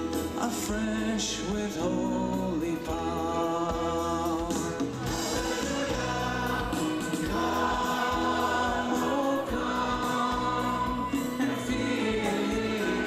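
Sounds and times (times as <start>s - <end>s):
instrumental accompaniment: 0.0s - 13.0s
gospel choir singing: 4.2s - 13.0s.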